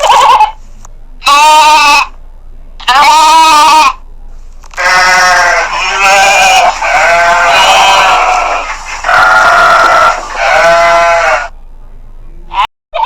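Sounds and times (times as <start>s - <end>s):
livestock bleating: 1.2s - 2.1s, 2.8s - 4.0s, 4.8s - 11.5s.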